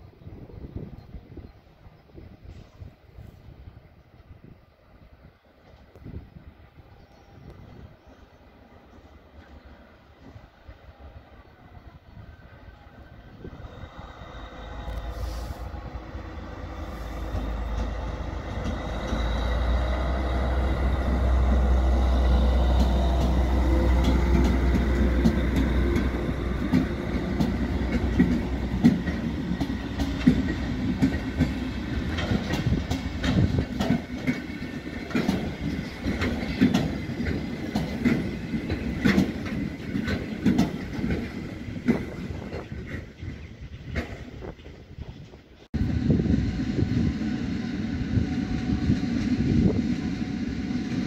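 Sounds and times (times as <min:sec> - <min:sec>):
diesel locomotive engine rumble: 0:00.0 - 0:51.0
train wheels clacking over rail joints: 0:16.5 - 0:45.4.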